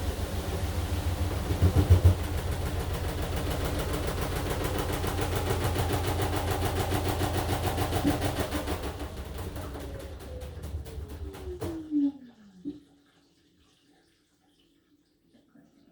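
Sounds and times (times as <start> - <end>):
washing machine drum turning: 0.0 - 12.1.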